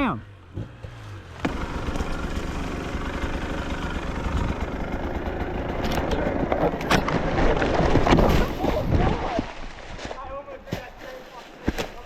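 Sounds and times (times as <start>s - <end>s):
dirt bike engine running: 1.2s - 8.4s.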